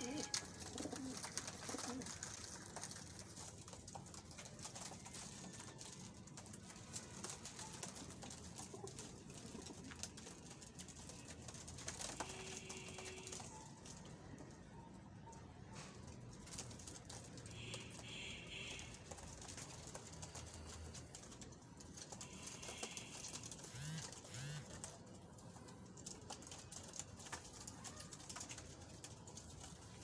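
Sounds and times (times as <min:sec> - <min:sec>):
pigeons cooing: 0:00.0 - 0:02.7.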